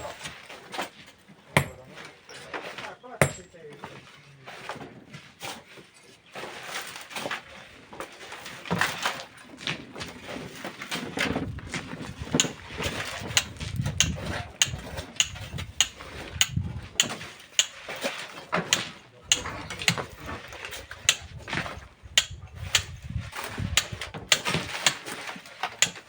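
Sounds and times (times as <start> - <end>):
metal tools striking rock: 1.6 - 2.4, 3.2 - 3.6, 13.2 - 17.8, 18.7 - 20.2, 22.1 - 22.9, 23.8 - 25.1, 25.7 - 26.0.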